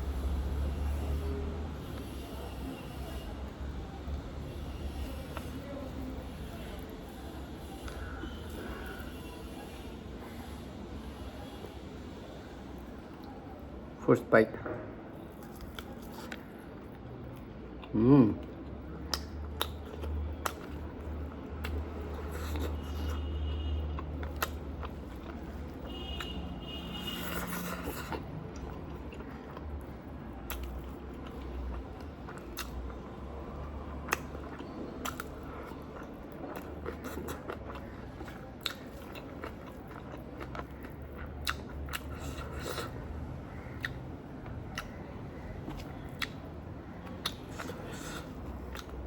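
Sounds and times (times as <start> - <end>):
person chewing food: 15.3 - 49.0
wet mouth clicks and smacks: 19.0 - 20.8, 32.3 - 33.0, 36.0 - 43.0, 43.6 - 44.1, 44.7 - 45.0, 45.6 - 46.5, 47.1 - 49.0.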